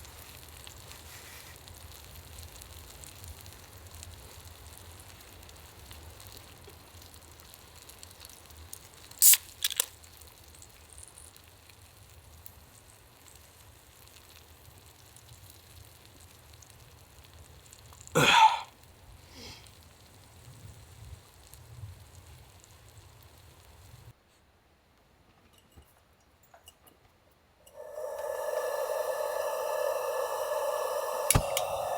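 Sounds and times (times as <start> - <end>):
steak sizzling and crackling: 0.0 - 18.2, 18.8 - 24.1
noisy burst: 27.7 - 31.9.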